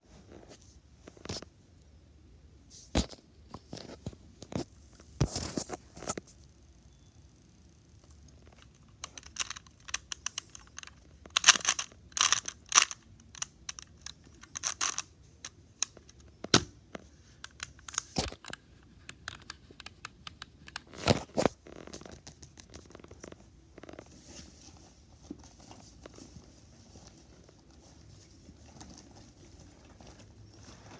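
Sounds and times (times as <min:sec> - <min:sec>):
plastic crinkling and crackling: 0:08.4 - 0:15.1
sharp plastic clicks: 0:08.6 - 0:16.8.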